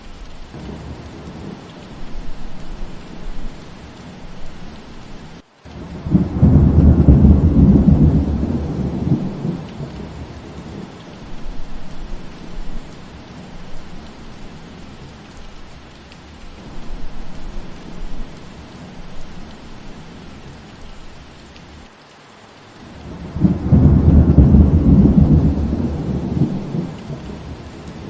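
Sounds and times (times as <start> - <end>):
steady rain: 0.0 - 28.0
thunder rumble: 0.5 - 15.5, 22.9 - 28.0.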